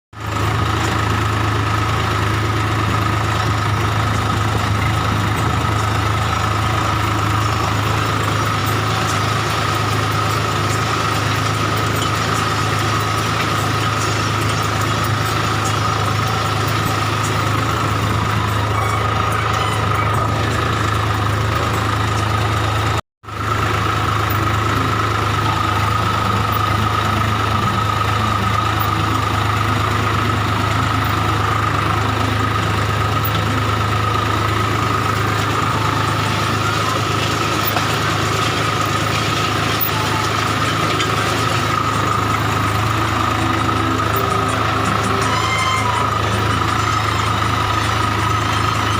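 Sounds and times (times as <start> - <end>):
tractor diesel engine running: 0.1 - 48.9
high whine: 24.2 - 48.9.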